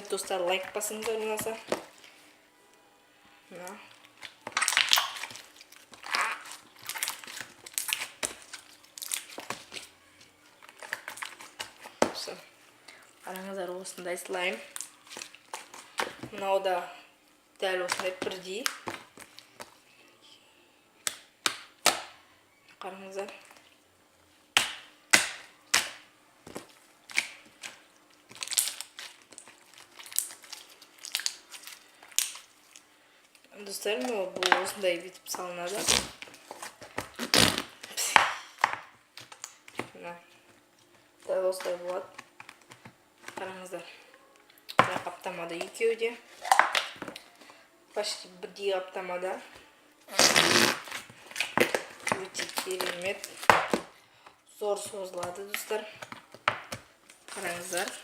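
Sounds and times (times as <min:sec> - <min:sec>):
slime squelching and popping: 0:03.6 - 0:12.4, 0:24.5 - 0:32.9.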